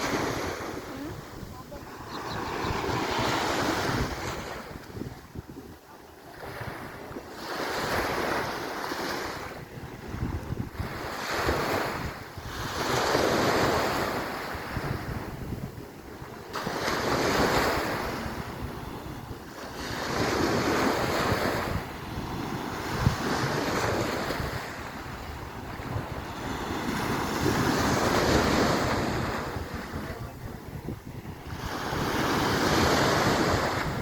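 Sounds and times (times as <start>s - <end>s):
waves washing onto shore: 0.0s - 34.0s
wind rumbling on microphone: 0.0s - 34.0s.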